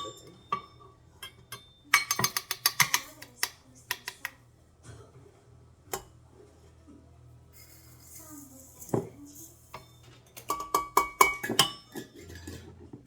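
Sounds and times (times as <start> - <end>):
utensils knocking mixing bowl: 0.0 - 4.3, 9.8 - 12.2.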